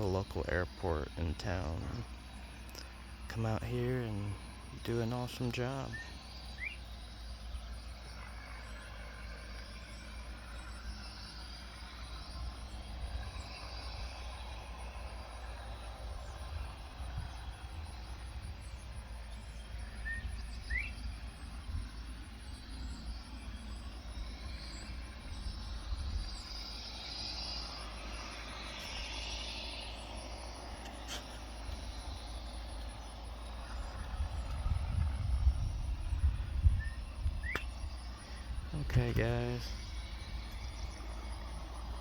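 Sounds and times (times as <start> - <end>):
insects chirring: 0.0 - 42.0
low rumble: 0.0 - 42.0
rising bird chirp: 0.0 - 42.0
sharp click: 37.5 - 37.8.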